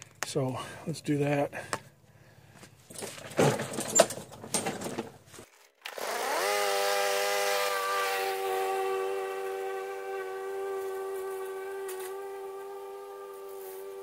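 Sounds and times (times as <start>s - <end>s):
clattering handling of mower: 2.8s - 5.7s
lawn mower motor running: 5.9s - 14.0s.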